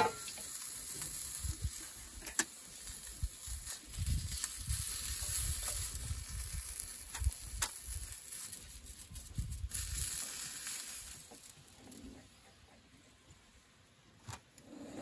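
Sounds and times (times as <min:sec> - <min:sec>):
sausages sizzling in a frying pan: 0:00.0 - 0:12.0.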